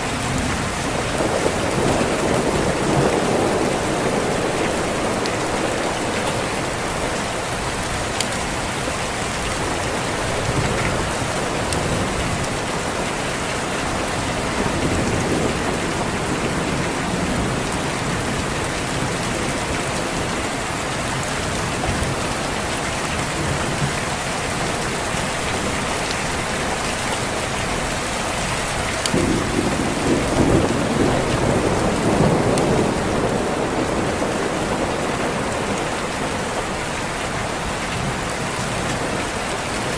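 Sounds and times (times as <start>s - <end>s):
low roll of thunder: 0.0s - 7.2s, 14.3s - 20.4s, 29.1s - 36.8s
heavy rain: 0.0s - 39.9s.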